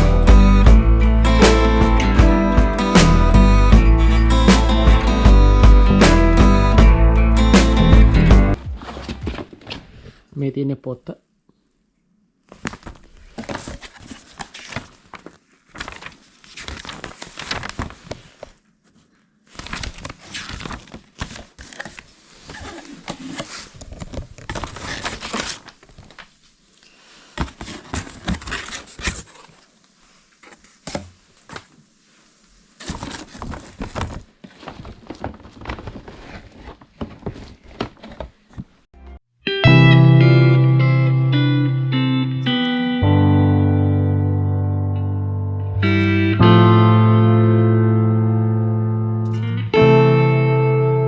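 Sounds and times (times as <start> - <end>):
packaging crinkling: 12.6 - 18.6.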